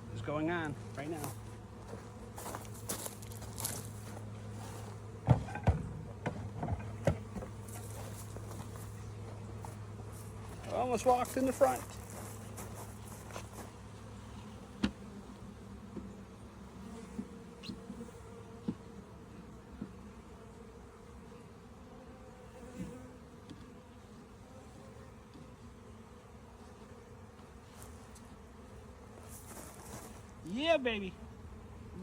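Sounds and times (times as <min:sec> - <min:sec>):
honeybees buzzing: 0:00.0 - 0:32.0.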